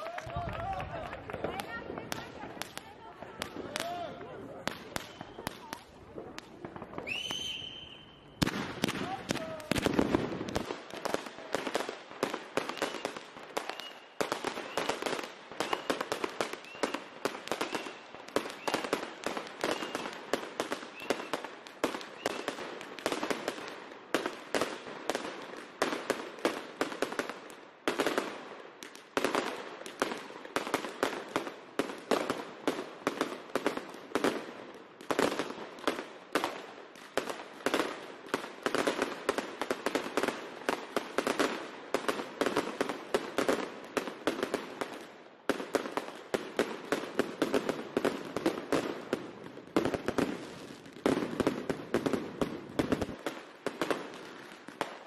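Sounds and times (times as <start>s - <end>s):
firecrackers banging: 0.0s - 43.7s
fireworks barrage: 0.0s - 55.0s.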